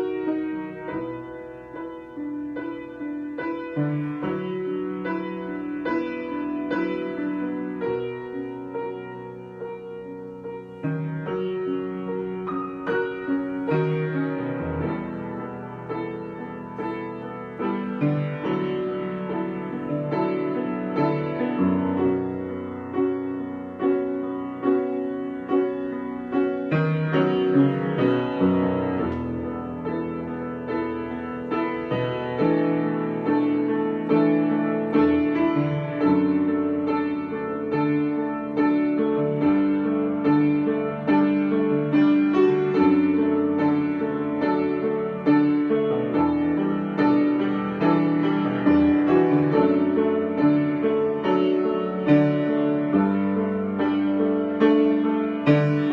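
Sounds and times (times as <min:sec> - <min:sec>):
solo piano: 0:00.0 - 0:55.9.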